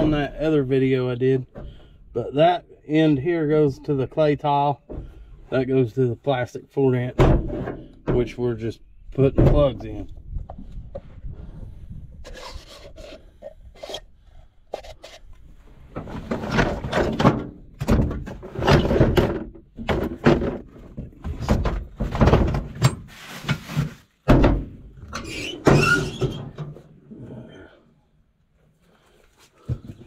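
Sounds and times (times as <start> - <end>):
pipe fittings squeaking and knocking: 25.0 - 26.8.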